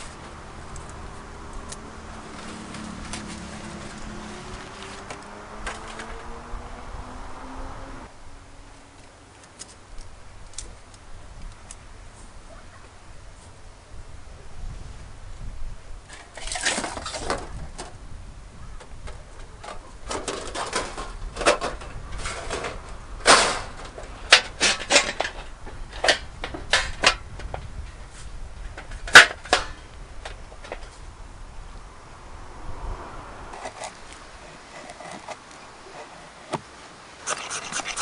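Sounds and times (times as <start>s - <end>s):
rustling: 1.6s - 6.1s
knocks and clatters: 18.8s - 27.7s.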